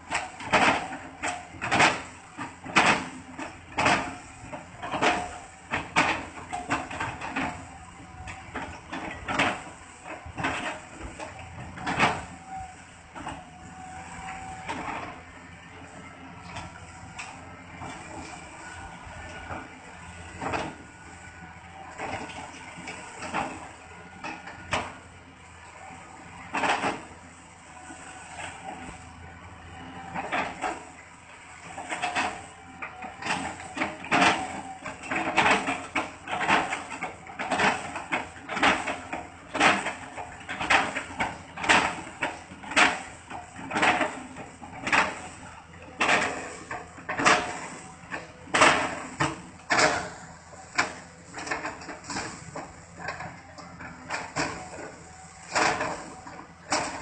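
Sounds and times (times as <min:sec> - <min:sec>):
excavator chopping impacts: 0:46.0 - 0:57.0.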